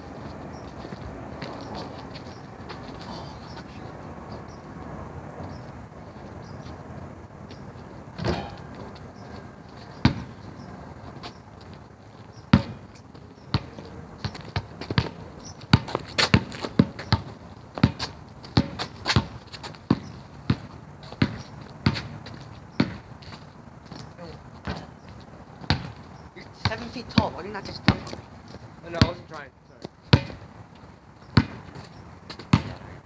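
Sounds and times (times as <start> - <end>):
basketball bouncing on court: 10.0 - 10.4, 12.5 - 12.9, 13.5 - 22.1, 22.8 - 23.0, 25.7 - 25.9, 26.6 - 28.2, 29.0 - 29.2, 30.1 - 30.4, 31.4 - 31.6, 32.4 - 32.8.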